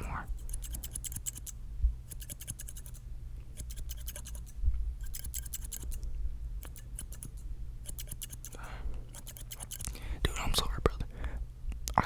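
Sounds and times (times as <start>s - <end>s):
scissors snipping: 0.3s - 3.0s, 3.6s - 6.0s, 6.6s - 10.0s.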